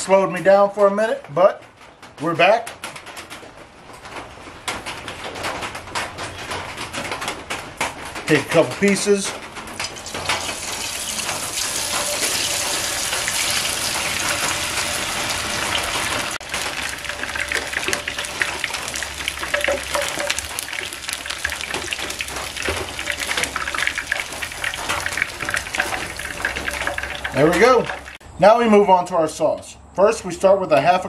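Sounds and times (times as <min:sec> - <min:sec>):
chicken deep-frying in oil: 0:08.3 - 0:28.2.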